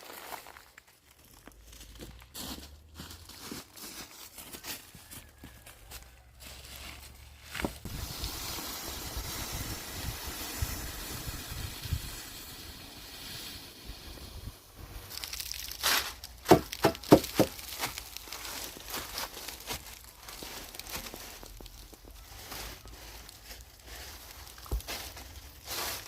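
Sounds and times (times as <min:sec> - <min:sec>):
steady hissing noise: 0:07.8 - 0:15.2.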